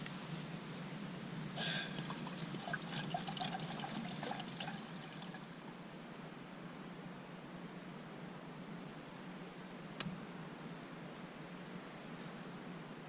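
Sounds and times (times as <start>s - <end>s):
water splashing: 1.6s - 5.6s
water trickling and dripping: 1.8s - 5.7s.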